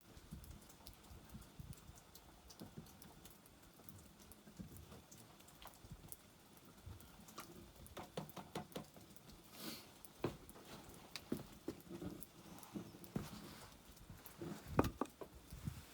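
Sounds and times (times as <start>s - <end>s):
campfire crackling and snapping: 8.7s - 15.6s.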